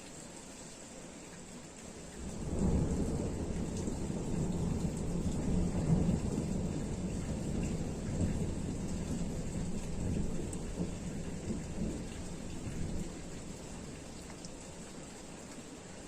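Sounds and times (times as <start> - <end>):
light rain: 0.0 - 16.0
distant thunder rumbling: 2.2 - 14.3.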